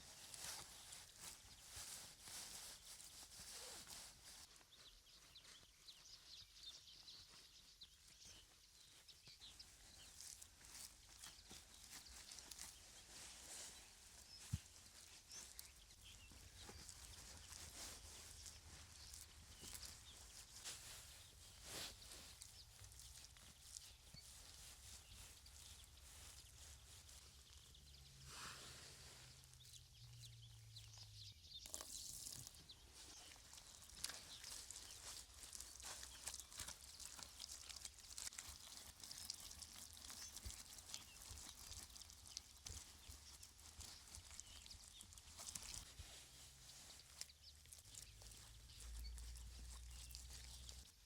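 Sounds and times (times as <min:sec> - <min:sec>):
faint rustling: 0:00.0 - 0:31.2
small birds chirping: 0:00.0 - 0:51.0.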